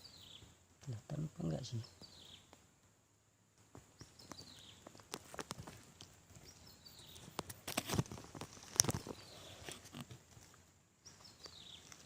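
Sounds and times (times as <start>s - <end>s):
faint bird chirps: 0.0s - 0.5s, 1.1s - 2.5s, 3.9s - 5.2s, 6.4s - 7.4s, 8.8s - 9.8s, 11.0s - 12.0s.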